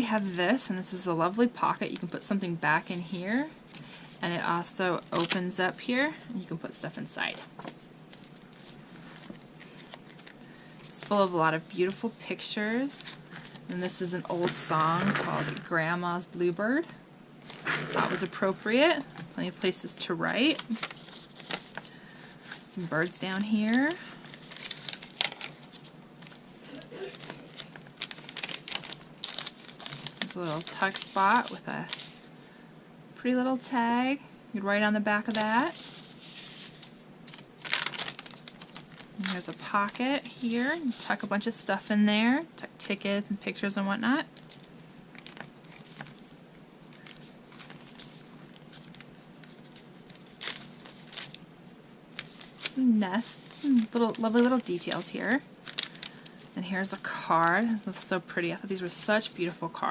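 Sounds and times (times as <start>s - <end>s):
paper pages rustling: 5.0s - 5.5s, 7.6s - 15.8s, 17.4s - 32.5s, 35.3s - 41.4s, 44.4s - 51.4s, 52.1s - 58.2s.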